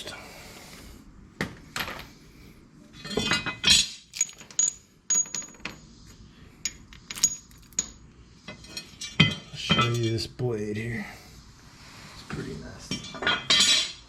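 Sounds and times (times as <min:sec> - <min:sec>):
metal parts clinking: 0:03.0 - 0:05.8, 0:06.6 - 0:08.0.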